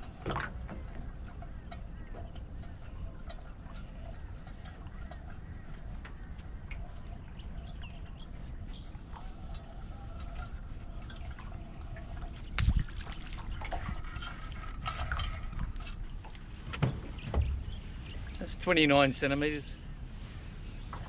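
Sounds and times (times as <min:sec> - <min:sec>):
water trickling and dripping: 0:00.0 - 0:21.0
steady low rumble: 0:15.0 - 0:21.0.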